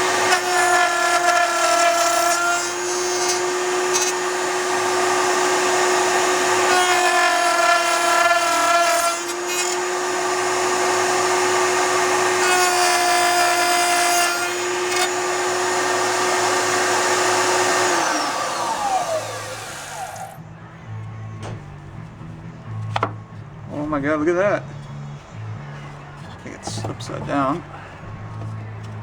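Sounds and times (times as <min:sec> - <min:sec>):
router cutting wood: 0:00.0 - 0:20.4, 0:26.1 - 0:27.8
router whining: 0:00.0 - 0:20.4
motor winding down: 0:15.0 - 0:20.4.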